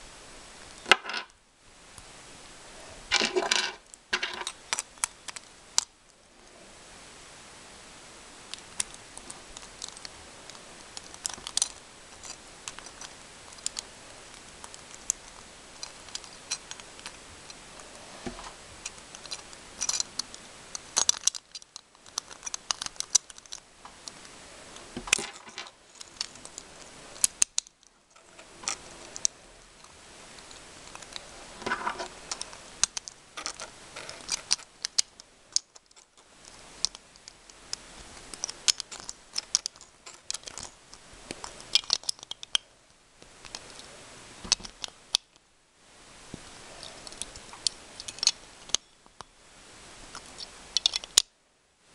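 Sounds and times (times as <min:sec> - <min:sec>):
faint steady hiss: 0:00.0 - 0:51.9
plastic toy clicks and rattles: 0:11.0 - 0:13.8, 0:18.8 - 0:23.6, 0:30.4 - 0:36.1, 0:38.3 - 0:40.8, 0:41.5 - 0:42.6, 0:47.0 - 0:48.8, 0:50.2 - 0:51.3.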